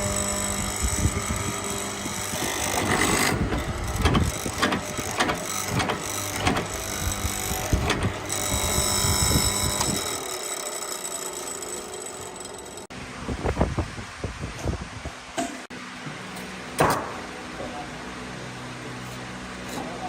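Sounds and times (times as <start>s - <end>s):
machine running: 0.0s - 13.0s
sharp mechanical clicks: 0.2s - 12.9s.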